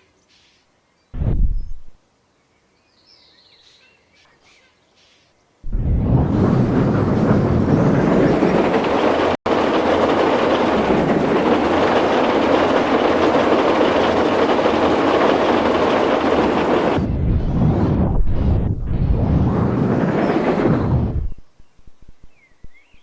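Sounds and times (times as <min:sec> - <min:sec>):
train rumbling: 0:05.7 - 0:21.4.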